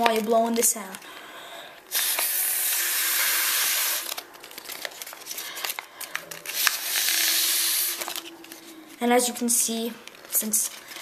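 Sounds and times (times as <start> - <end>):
paper crinkling: 0.0 - 1.2, 3.3 - 11.0
person blowing hard: 1.9 - 4.2, 6.5 - 8.2.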